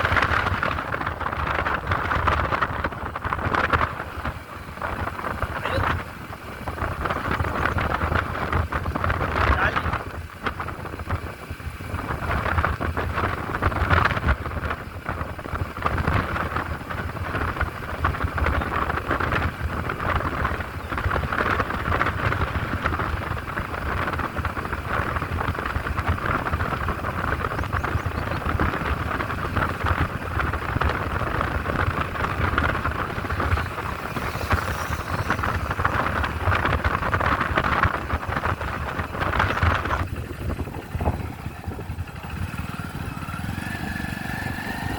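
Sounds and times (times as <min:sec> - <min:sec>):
motorcycle engine: 0:00.0 - 0:44.9
wind rush on microphone: 0:00.0 - 0:44.9.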